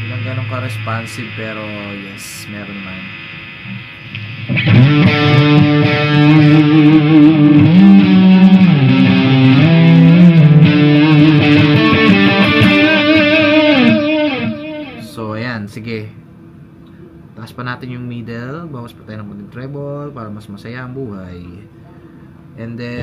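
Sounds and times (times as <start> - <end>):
distorted electric guitar riff: 0.0 - 15.3.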